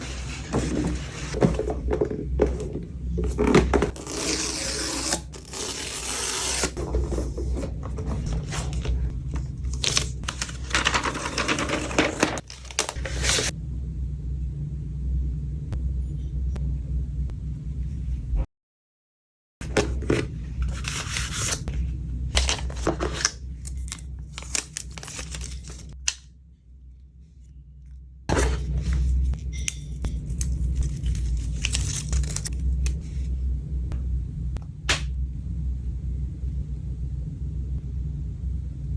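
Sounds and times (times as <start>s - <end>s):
paper and cardboard tearing: 3.9s - 7.0s, 9.7s - 13.5s, 20.6s - 21.6s, 22.4s - 25.9s
packaging clicks and rustles: 9.7s - 13.5s, 22.4s - 25.9s, 30.4s - 32.5s.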